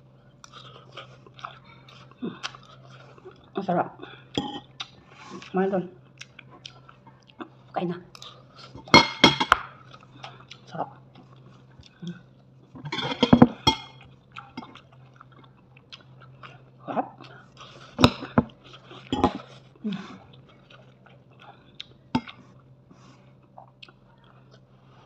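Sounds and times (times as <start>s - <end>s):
person chewing food: 0.0s - 25.0s.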